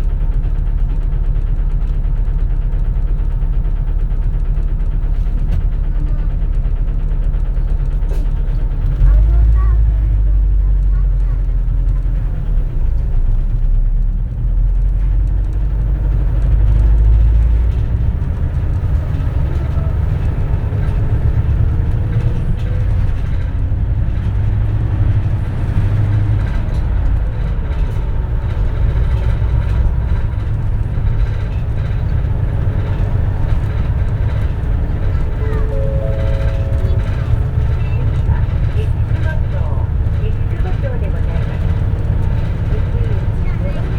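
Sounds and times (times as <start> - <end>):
bus engine and road rumble: 0.0 - 43.9
faint drivetrain whine: 0.0 - 43.9.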